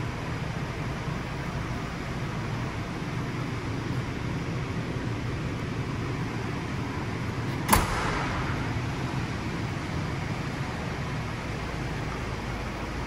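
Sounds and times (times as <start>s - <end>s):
diesel engine idling: 0.0s - 13.0s
sharp knock: 7.7s - 8.7s.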